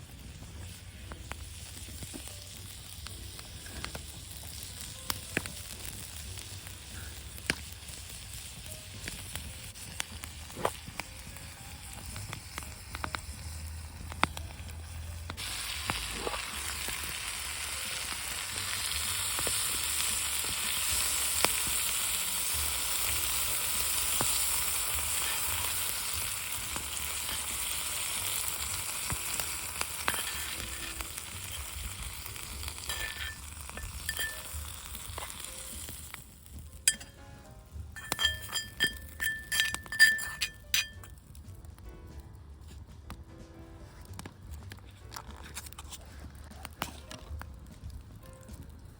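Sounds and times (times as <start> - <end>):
meat sizzling on griddle: 0.0 - 37.0.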